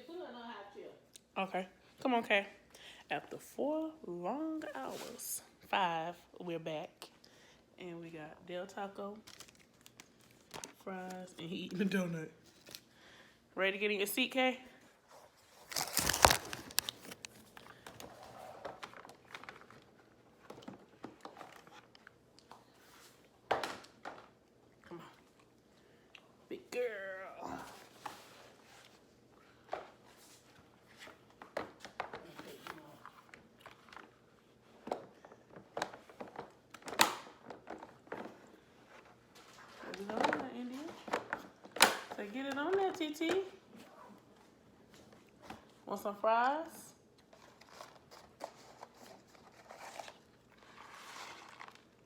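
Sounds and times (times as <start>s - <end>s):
paper bag and wrappers crinkling: 9.0s - 12.9s, 15.4s - 20.2s, 47.3s - 52.0s.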